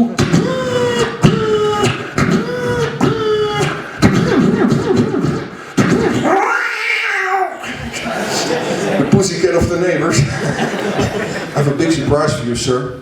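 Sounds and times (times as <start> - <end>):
man imitating motor whine: 0.0 - 6.5
man imitating cat meow: 6.2 - 7.6.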